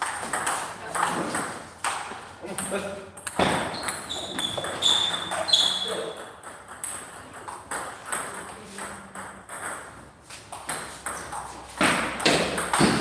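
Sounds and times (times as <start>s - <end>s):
brief high squeak: 3.7s - 6.1s.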